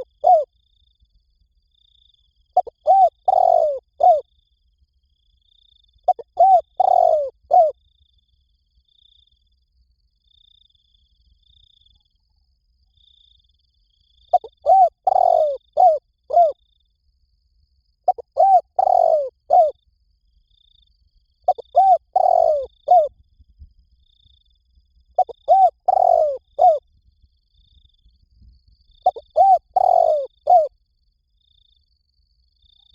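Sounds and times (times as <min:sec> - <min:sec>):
dove cooing: 0:00.0 - 0:00.5, 0:02.6 - 0:04.2, 0:06.1 - 0:07.7, 0:14.3 - 0:16.6, 0:18.1 - 0:19.8, 0:21.5 - 0:23.1, 0:25.2 - 0:26.8, 0:29.0 - 0:30.7
faint high peeping: 0:00.0 - 0:00.5, 0:01.8 - 0:04.6, 0:05.4 - 0:07.8, 0:14.2 - 0:16.6, 0:18.0 - 0:19.8, 0:20.4 - 0:23.2, 0:24.0 - 0:30.7.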